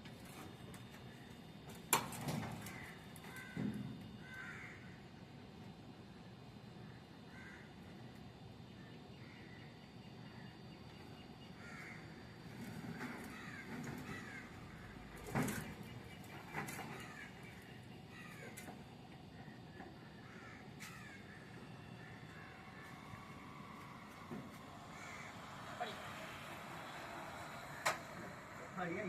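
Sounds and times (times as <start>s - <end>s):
crows cawing: 2.5s - 5.1s, 6.8s - 8.1s, 9.1s - 9.7s, 11.6s - 15.7s, 16.5s - 29.0s.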